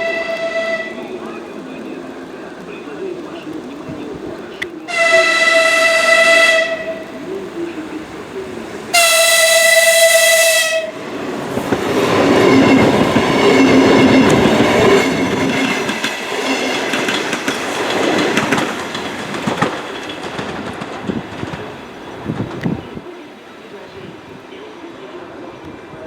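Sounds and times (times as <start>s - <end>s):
train horn: 0.0s - 1.3s, 4.8s - 11.2s
train wheels clicking over rail joints: 0.0s - 23.0s.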